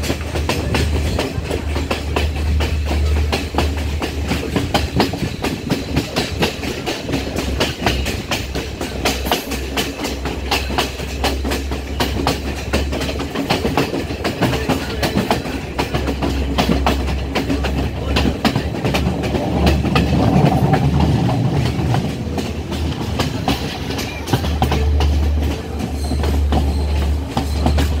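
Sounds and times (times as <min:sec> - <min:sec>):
train low rumble: 0:00.0 - 0:28.0
train wheels clattering over rail joints: 0:00.0 - 0:28.0.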